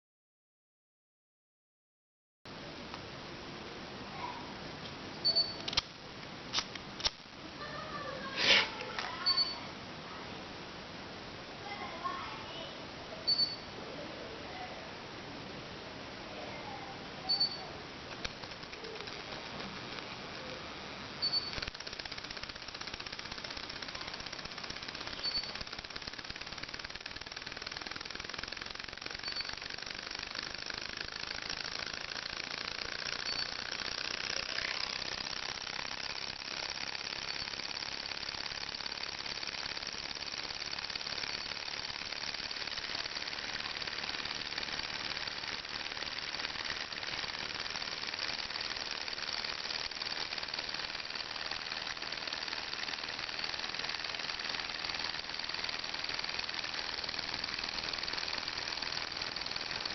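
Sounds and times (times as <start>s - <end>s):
small engine rattling: 17.3s - 59.9s.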